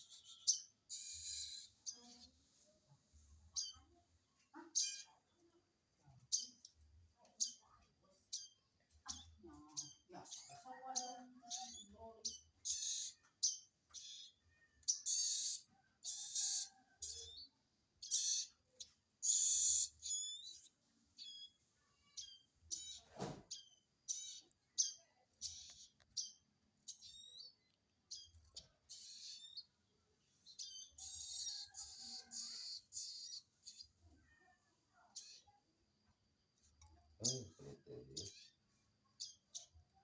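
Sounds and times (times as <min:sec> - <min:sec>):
baby birds begging calls: 0:00.1 - 0:02.0, 0:04.7 - 0:05.3, 0:08.3 - 0:21.6, 0:23.6 - 0:29.8, 0:30.5 - 0:34.3, 0:37.2 - 0:38.6.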